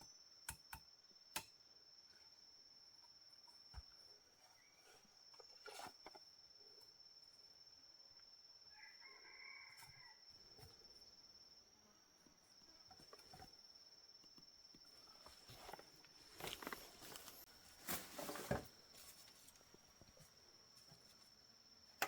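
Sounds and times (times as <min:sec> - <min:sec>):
high insect trill: 0:00.0 - 0:22.0
faint rustling: 0:15.0 - 0:21.3.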